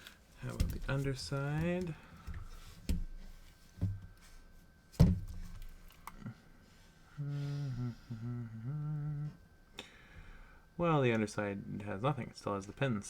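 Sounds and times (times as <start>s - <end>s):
man humming: 7.1s - 9.4s.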